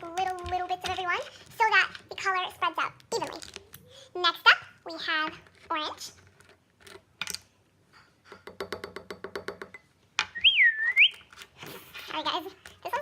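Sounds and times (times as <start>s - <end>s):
whistle-like tone dipping and rising: 10.4s - 11.2s.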